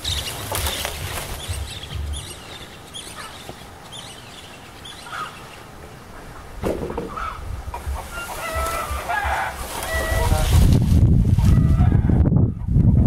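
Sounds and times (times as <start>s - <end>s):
birds chirping: 0.0s - 10.5s
chicken clucking: 6.2s - 10.4s.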